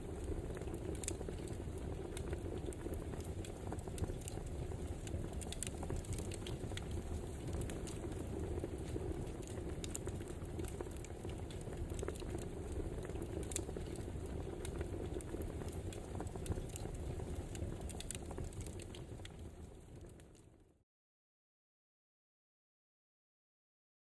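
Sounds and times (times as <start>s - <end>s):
wood fire crackling: 0.0s - 20.6s.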